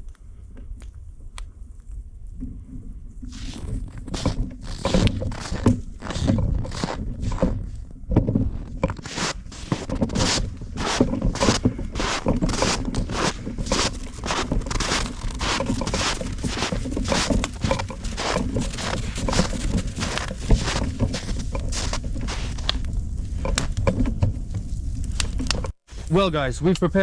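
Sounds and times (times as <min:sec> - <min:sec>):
hand saw cutting wood: 0:03.4 - 0:07.4, 0:09.0 - 0:22.6.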